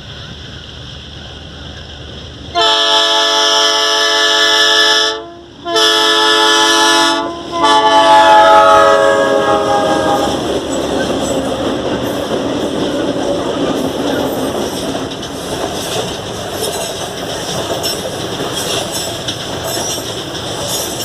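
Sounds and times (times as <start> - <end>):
train rumbling and clattering past: 0.0 - 21.0
locomotive air horn blasts: 2.5 - 10.5.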